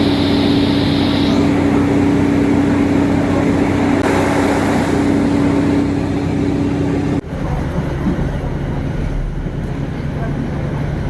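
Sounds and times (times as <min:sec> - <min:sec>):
high hiss: 0:00.0 - 0:07.2
train engine running loudly: 0:00.0 - 0:08.1.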